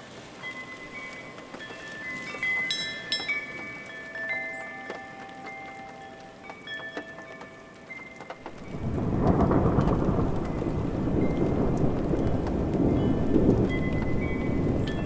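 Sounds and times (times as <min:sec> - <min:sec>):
steady rain: 0:00.0 - 0:15.0
thunder rumbling: 0:08.4 - 0:15.0.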